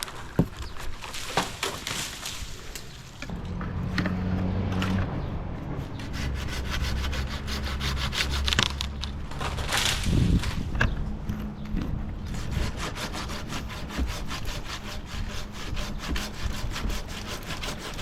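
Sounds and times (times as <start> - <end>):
low engine hum: 2.8 - 14.1
saw rasping through branch: 5.8 - 18.0.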